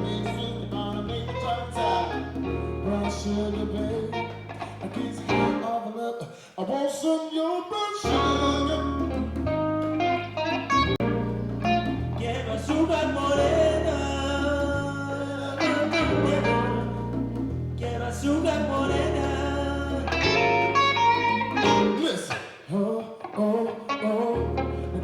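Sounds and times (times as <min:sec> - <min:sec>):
bass line: 0:00.0 - 0:05.6, 0:08.1 - 0:22.0
latin band guitar: 0:00.0 - 0:05.8, 0:08.0 - 0:25.0.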